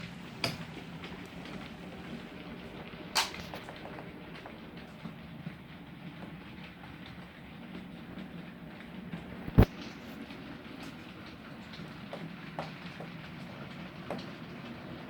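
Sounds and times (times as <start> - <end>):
wheels clicking over rail joints: 0.0 - 15.0.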